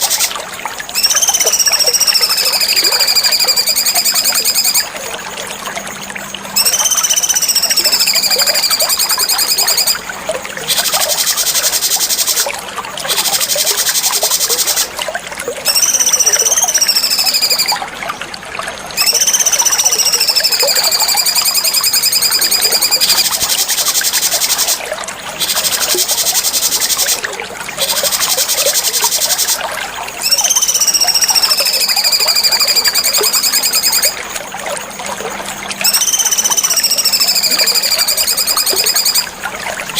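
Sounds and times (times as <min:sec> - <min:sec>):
songbird buzzy trills: 0:00.0 - 0:15.0, 0:15.6 - 0:17.9, 0:18.9 - 0:39.9
songbird whistled notes: 0:00.9 - 0:04.9, 0:06.6 - 0:10.0, 0:15.6 - 0:17.8, 0:19.0 - 0:24.8, 0:30.2 - 0:34.2, 0:35.8 - 0:39.3.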